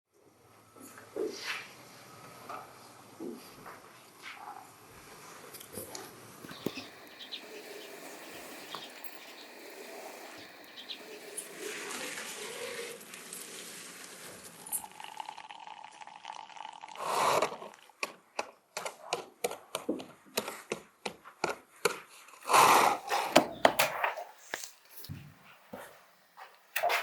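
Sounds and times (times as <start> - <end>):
wooden blocks knocking on cloth: 23.3 - 23.9.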